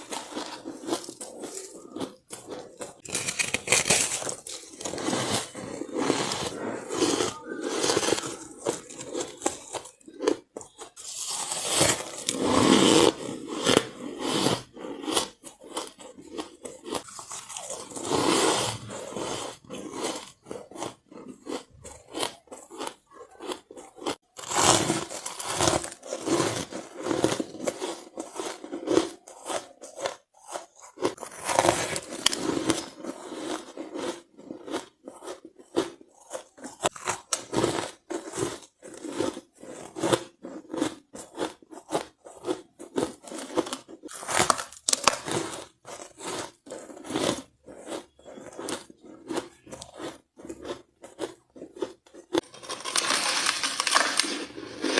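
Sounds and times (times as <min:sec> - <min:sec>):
ice being chewed: 0:00.0 - 0:54.9.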